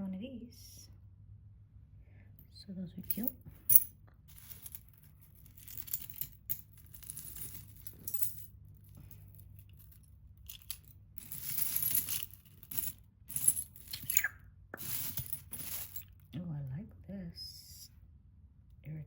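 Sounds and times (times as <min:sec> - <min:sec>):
jewelry clinking and rattling: 0:03.0 - 0:16.3.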